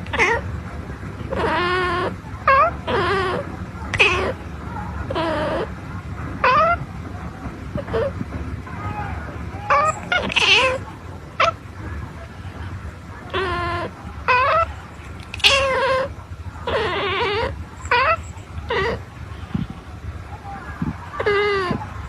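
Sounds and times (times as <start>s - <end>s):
kitten meowing: 4.0s - 4.4s, 9.7s - 10.8s, 15.4s - 16.1s, 16.7s - 19.0s.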